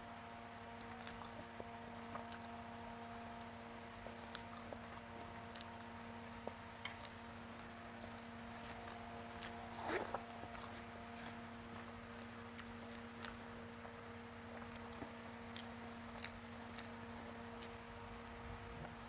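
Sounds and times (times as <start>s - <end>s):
low steady hum: 0.0s - 19.0s
chewing and wet mouth clicks: 2.1s - 5.7s, 8.0s - 14.0s, 14.6s - 17.0s.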